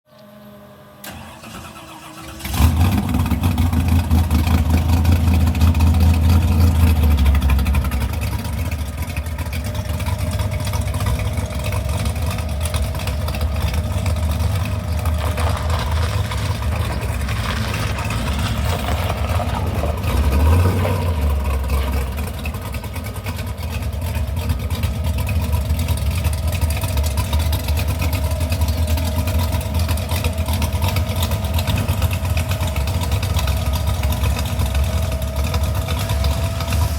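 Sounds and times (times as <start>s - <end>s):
pickup engine cranking and idling: 0.2s - 36.9s.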